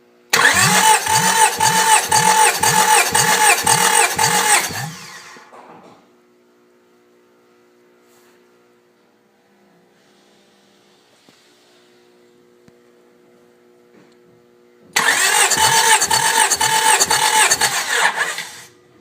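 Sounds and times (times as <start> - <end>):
engine cranking without firing: 0.3 - 5.4, 15.0 - 18.7
starter motor whining: 0.3 - 5.5, 15.0 - 18.7.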